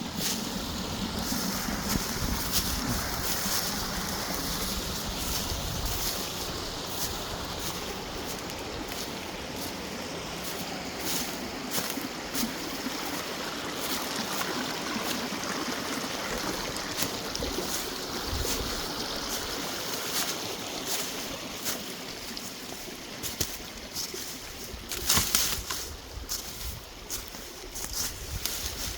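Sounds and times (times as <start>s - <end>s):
creek water rushing: 0.0s - 28.9s.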